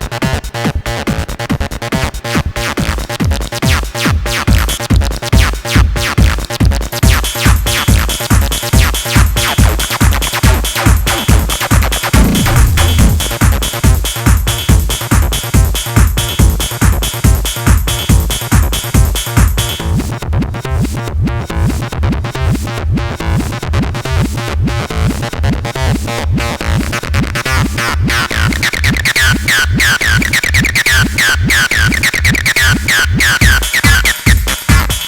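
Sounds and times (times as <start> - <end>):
drum machine kick pulse: 3.2 - 24.8, 33.2 - 35.0
synth line: 12.2 - 13.4
resonant synth pattern: 12.2 - 13.5.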